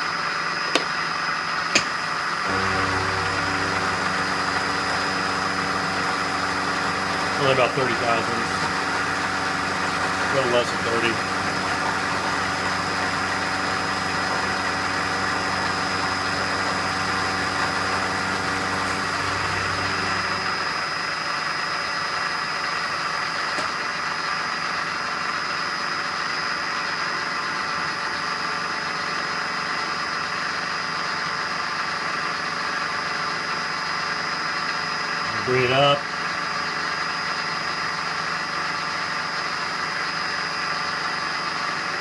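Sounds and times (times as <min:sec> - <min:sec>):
machine tool whining: 0:00.5 - 0:21.3
low machine hum: 0:01.8 - 0:20.9.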